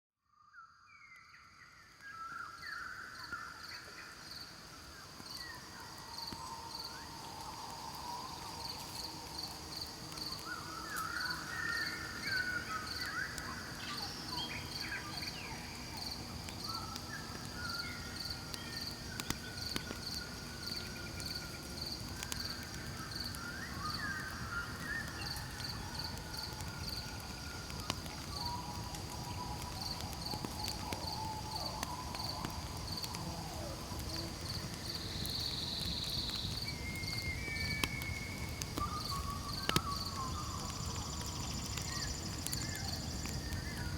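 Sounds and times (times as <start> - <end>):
campfire crackles: 1.9 - 43.9
crickets chirping: 2.0 - 43.9
campfire burning: 4.1 - 43.9
night creatures whistling: 23.4 - 33.3, 34.8 - 43.9.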